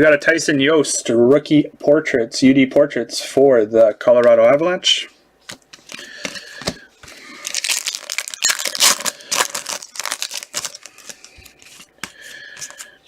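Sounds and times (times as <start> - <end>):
wrapper crinkling: 7.0 - 11.9.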